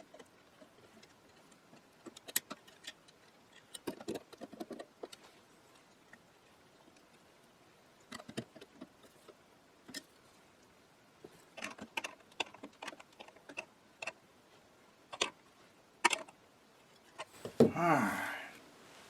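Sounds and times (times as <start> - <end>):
clicks of small parts and hand tools: 0.0 - 5.2, 15.1 - 15.4.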